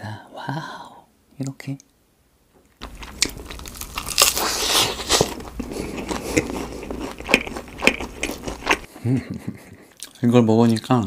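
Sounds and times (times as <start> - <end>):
crunchy chewing: 2.8 - 8.9.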